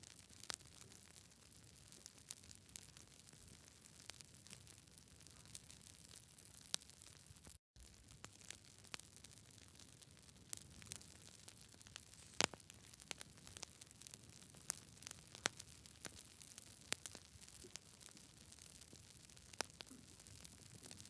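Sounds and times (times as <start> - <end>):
campfire crackling: 7.8 - 21.0
faint steady hiss: 11.4 - 13.6.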